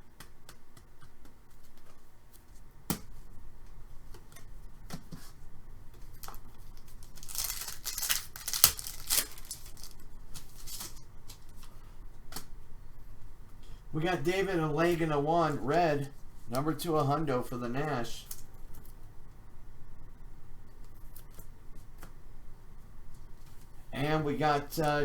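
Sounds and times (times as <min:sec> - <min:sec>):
card packs crinkling and clicking: 0:06.0 - 0:12.5
card pack tearing rustle: 0:06.2 - 0:11.0.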